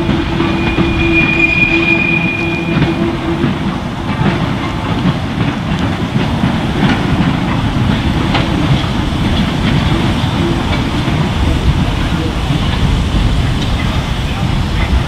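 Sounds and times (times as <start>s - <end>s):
train low rumble: 0.0s - 15.0s.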